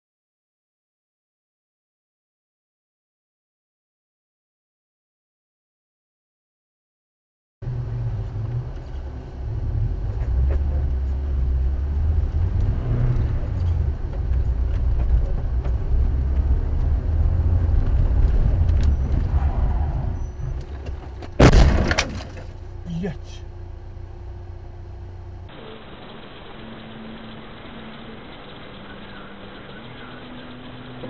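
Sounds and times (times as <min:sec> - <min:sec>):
car engine and road noise: 0:07.6 - 0:31.0
loud collision bang: 0:21.4 - 0:22.6.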